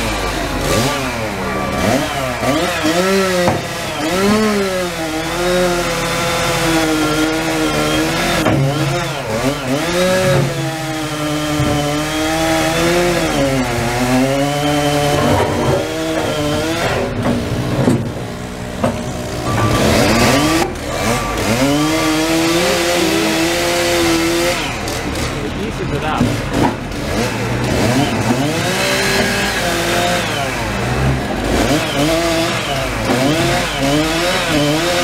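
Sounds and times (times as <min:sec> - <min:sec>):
chainsaw revving and cutting wood: 0:00.0 - 0:35.0
low engine drone: 0:12.3 - 0:33.7.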